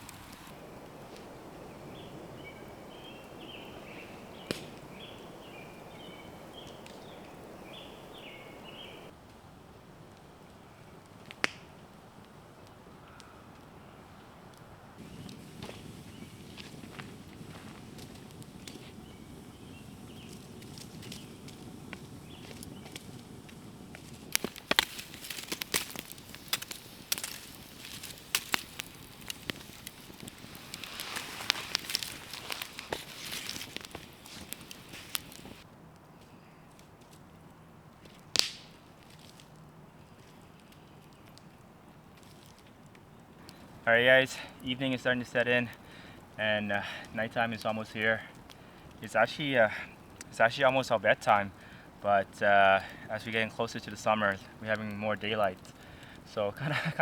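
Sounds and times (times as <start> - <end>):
songbird chirping: 0.0 - 9.1, 15.0 - 28.2
background hiss: 0.0 - 9.6, 11.4 - 35.7, 43.2 - 57.0
campfire crackling and popping: 0.0 - 57.0
sharp pops: 4.3 - 8.2, 15.0 - 35.6, 38.4 - 38.8.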